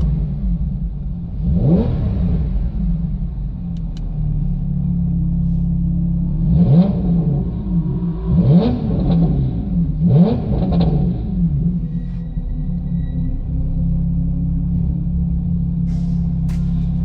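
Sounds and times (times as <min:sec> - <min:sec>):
car engine revving: 0:00.0 - 0:04.6, 0:05.2 - 0:12.2.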